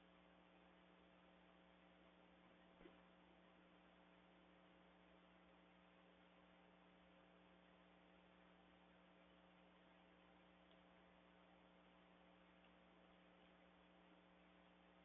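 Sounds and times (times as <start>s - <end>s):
faint electrical hum: 0.0s - 15.0s
faint click: 10.6s - 10.9s.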